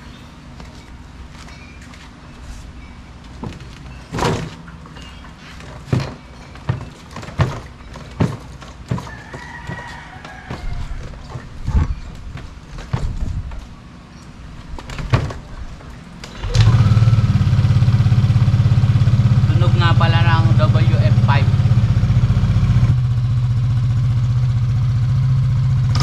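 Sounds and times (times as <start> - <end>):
dull thumps of scooter suspension: 3.4 - 13.7.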